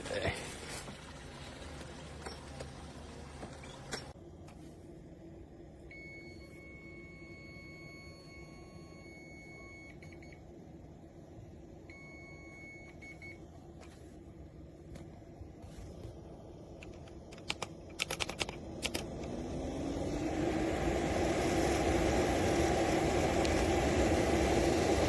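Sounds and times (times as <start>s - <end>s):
low machine hum: 0.0s - 17.9s, 18.5s - 25.0s
sharp clicks: 16.8s - 19.3s.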